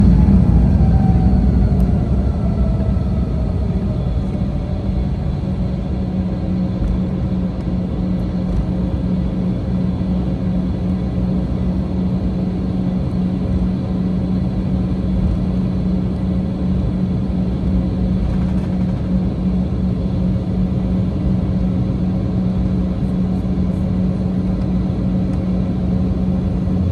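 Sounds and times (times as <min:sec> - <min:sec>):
airliner cabin engine rumble: 0:00.0 - 0:26.9.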